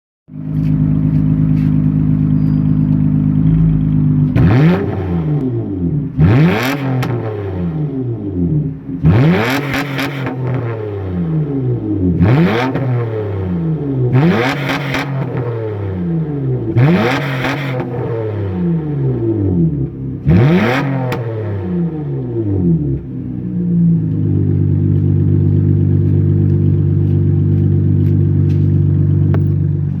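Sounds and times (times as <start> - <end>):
car engine idling: 0.3 - 6.4, 21.9 - 30.0
loud car engine idling and revving: 0.3 - 30.0.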